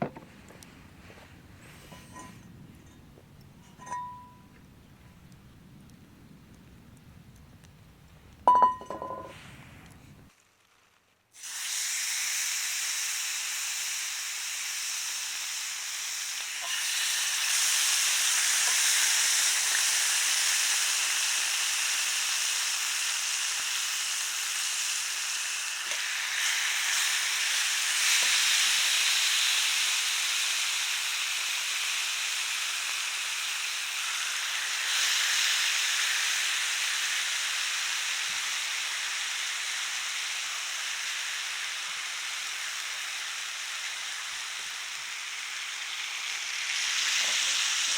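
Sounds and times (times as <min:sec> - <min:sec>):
meat sizzling on a grill: 0:10.3 - 0:47.9.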